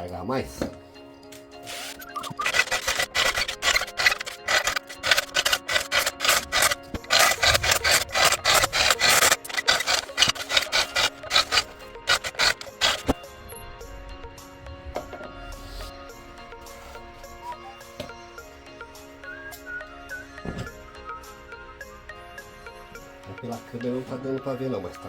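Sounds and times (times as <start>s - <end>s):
background music: 0.0s - 25.0s
hand tool rasping into wood: 1.7s - 13.2s.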